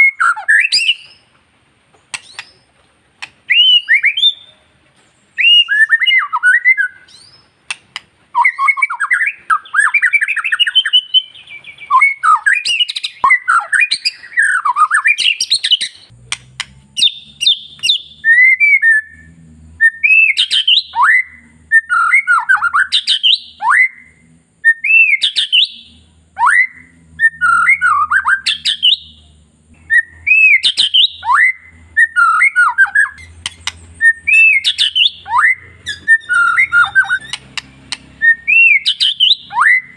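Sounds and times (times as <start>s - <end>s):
bird singing whistled phrases: 0.0s - 1.2s, 3.5s - 4.6s, 5.4s - 7.8s, 8.4s - 16.1s, 16.9s - 29.2s, 29.8s - 39.9s
harsh bird squawks: 29.9s - 39.9s.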